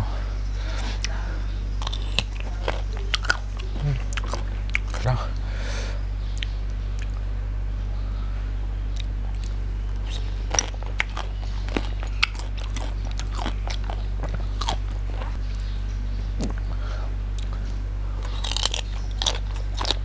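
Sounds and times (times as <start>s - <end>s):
steady low hum: 0.0s - 20.0s
person chewing: 0.7s - 1.2s, 1.8s - 5.4s, 8.9s - 15.4s, 16.4s - 20.0s
crunching raw vegetables: 1.8s - 5.1s, 8.8s - 20.0s.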